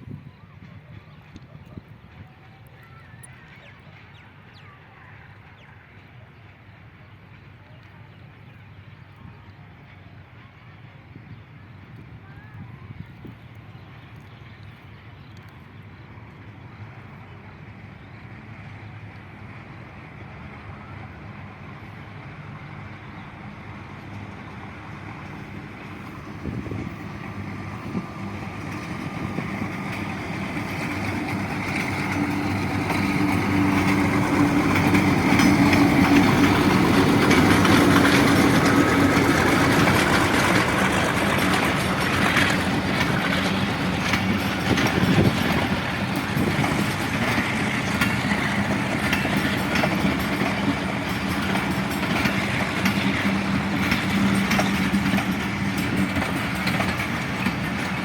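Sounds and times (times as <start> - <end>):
diesel locomotive engine hum: 0.0 - 58.0
train wheels clattering over rails: 22.1 - 58.0.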